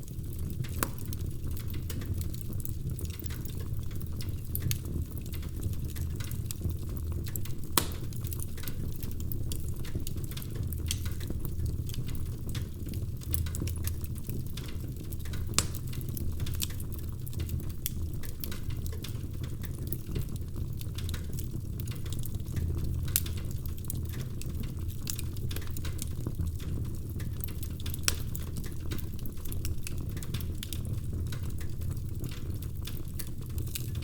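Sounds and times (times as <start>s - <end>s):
low rumble of flames: 0.0s - 34.0s
wood fire crackling and popping: 0.0s - 34.0s.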